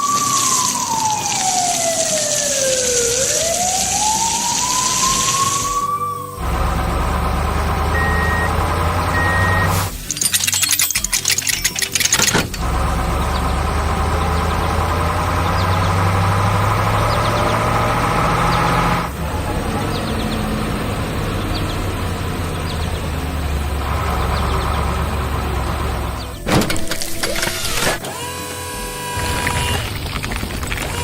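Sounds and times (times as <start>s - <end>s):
high droning: 0.0s - 10.2s
heavy vehicle engine running: 6.3s - 10.0s, 12.4s - 26.5s.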